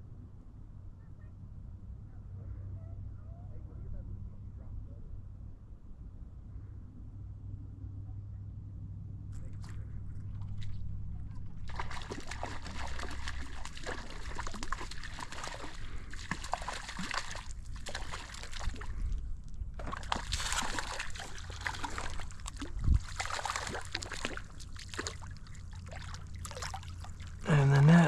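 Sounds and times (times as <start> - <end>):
water splashing and sloshing: 9.6 - 28.0.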